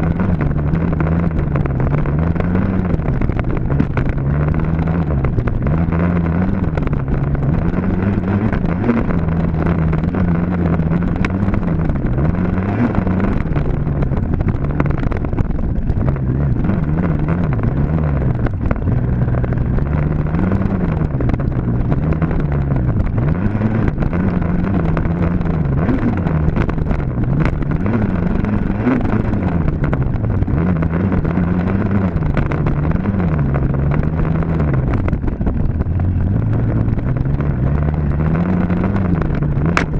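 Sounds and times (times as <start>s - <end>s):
dirt bike engine revving: 0.0s - 35.1s.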